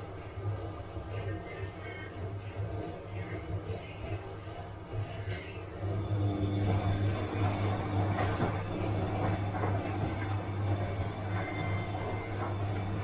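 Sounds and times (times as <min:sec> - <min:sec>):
washing machine motor hum: 0:00.0 - 0:13.0
washing machine swishing: 0:03.7 - 0:13.0.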